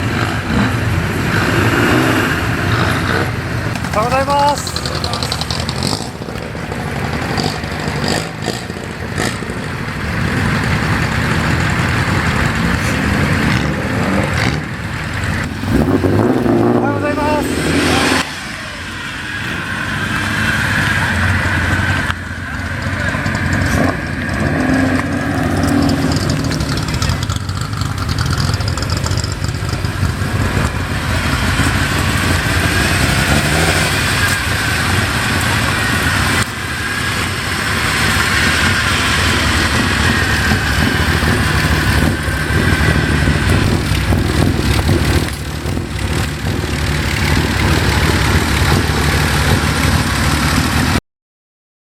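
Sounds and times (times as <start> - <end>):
car engine running: 0.0 - 51.0.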